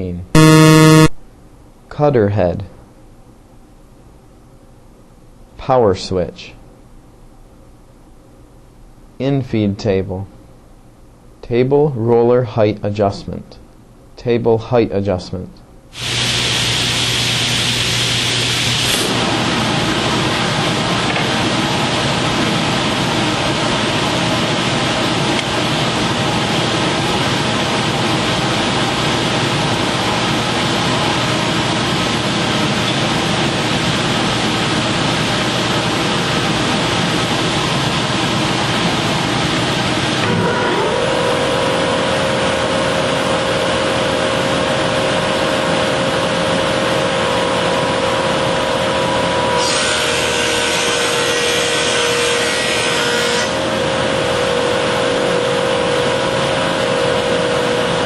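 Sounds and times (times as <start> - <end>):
planer whine: 0.4 - 1.2, 40.2 - 44.1, 46.7 - 58.0
planer cutting board: 18.5 - 19.2, 49.6 - 53.6
woodworking planer running: 40.2 - 44.0, 46.7 - 58.0.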